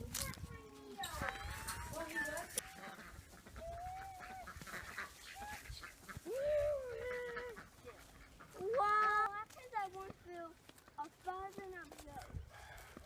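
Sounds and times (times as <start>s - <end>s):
poultry honking calls: 1.2s - 6.3s, 7.0s - 9.2s.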